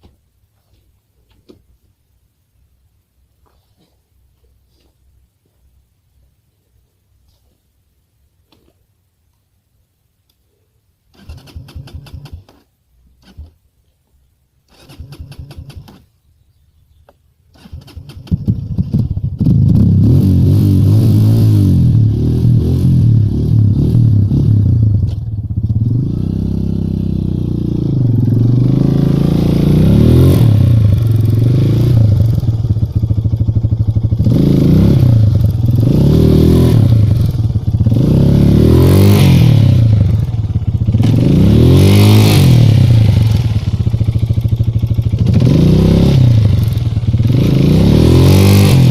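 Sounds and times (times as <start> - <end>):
motorcycle engine revving: 11.1 - 12.6, 14.7 - 16.1, 17.5 - 48.9.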